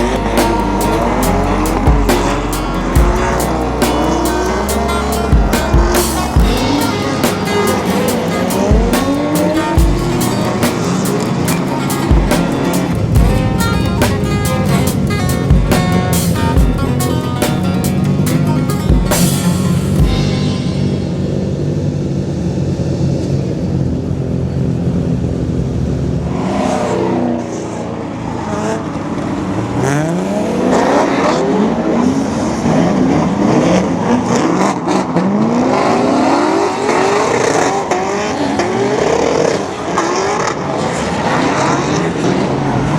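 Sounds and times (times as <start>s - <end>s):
background music: 0.0s - 21.7s
car engines revving: 0.0s - 42.9s.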